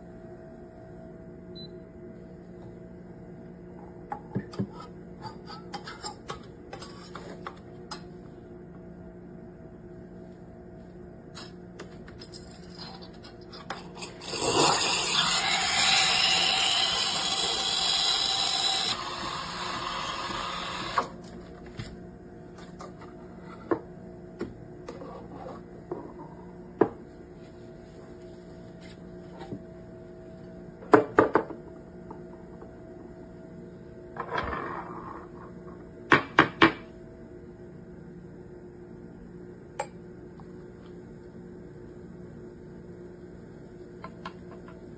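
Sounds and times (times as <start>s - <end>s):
steam wand hissing: 14.3s - 21.1s.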